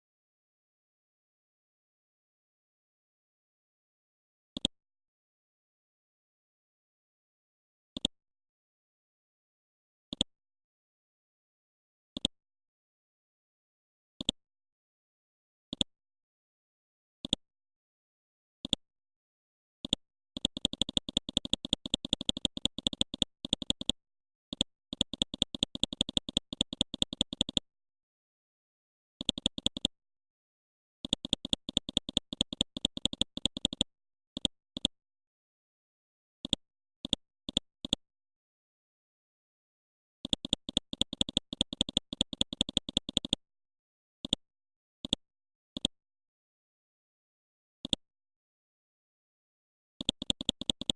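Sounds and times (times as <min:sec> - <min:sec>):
rapid sharp clicks: 0:19.8 - 0:27.6, 0:29.2 - 0:29.9, 0:31.0 - 0:35.0, 0:40.2 - 0:43.4, 0:50.0 - 0:50.9.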